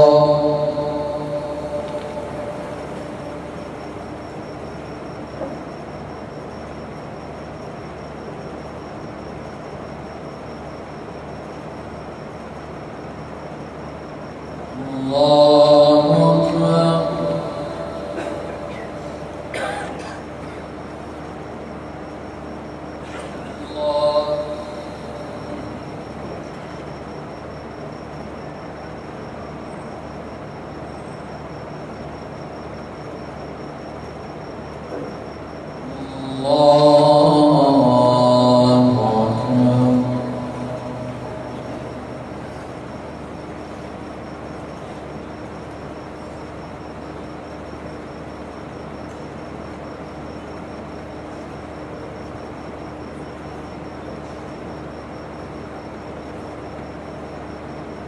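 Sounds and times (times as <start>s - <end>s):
low hum: 0.0s - 6.0s, 23.4s - 27.4s, 35.2s - 44.1s
faint constant high tone: 0.0s - 58.0s
faint high-pitched whine: 0.0s - 58.0s
rumbling hiss: 0.0s - 58.0s.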